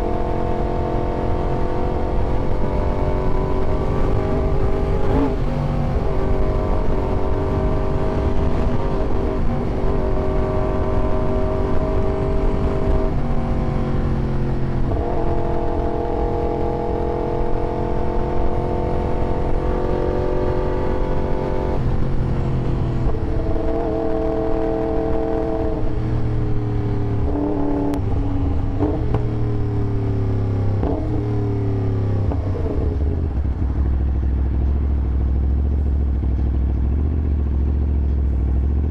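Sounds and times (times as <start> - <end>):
motorcycle engine running: 16.8 - 38.9.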